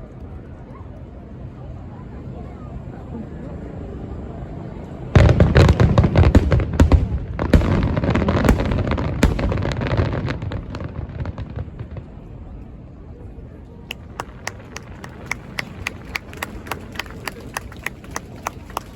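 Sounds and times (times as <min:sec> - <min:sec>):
fireworks bangs: 0:05.2 - 0:12.2, 0:13.9 - 0:18.9.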